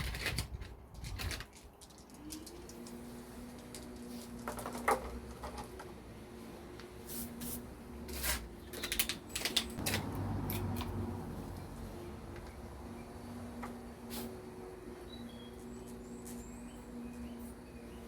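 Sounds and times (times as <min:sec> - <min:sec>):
clicks and knocks of metal tools: 0:08.6 - 0:11.0.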